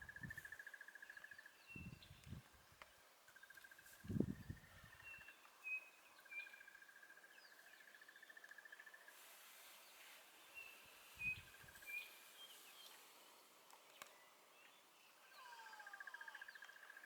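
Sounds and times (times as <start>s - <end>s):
bird chirps: 3.4s - 17.0s.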